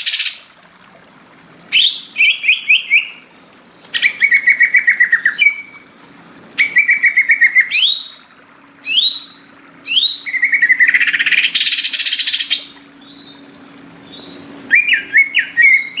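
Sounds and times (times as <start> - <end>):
bird singing trills and whistles: 1.7 - 3.3, 3.9 - 5.8, 6.6 - 8.2, 8.8 - 16.0.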